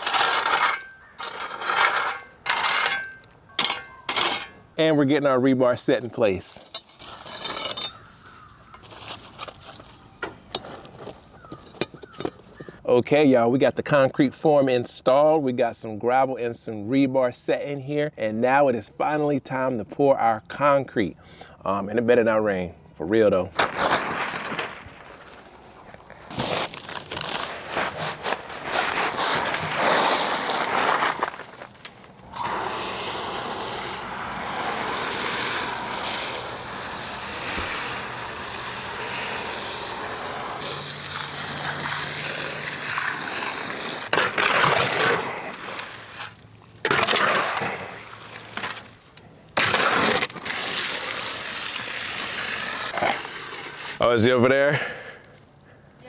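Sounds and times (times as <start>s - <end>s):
concrete scraping and crunching: 0.0s - 4.9s, 5.8s - 12.8s, 23.5s - 54.2s.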